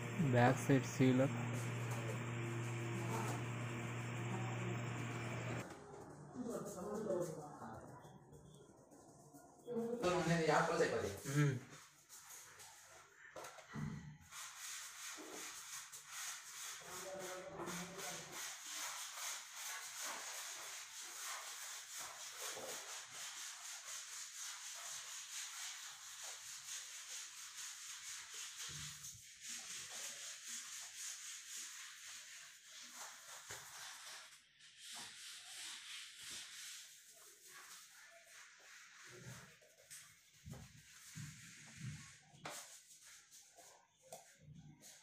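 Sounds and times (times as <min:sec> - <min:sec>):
rubbing strokes on wooden door: 0:14.2 - 0:45.0.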